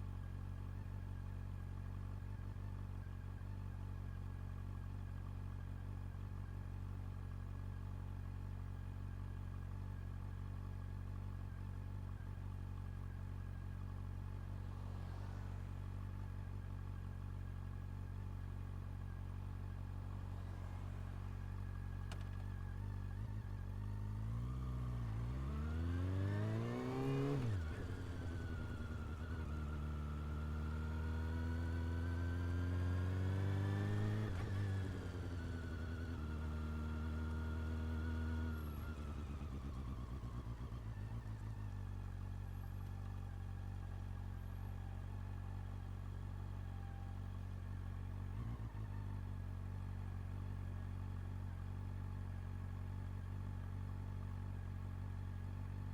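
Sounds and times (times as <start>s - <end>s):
motorcycle engine accelerating: 9.2s - 55.9s.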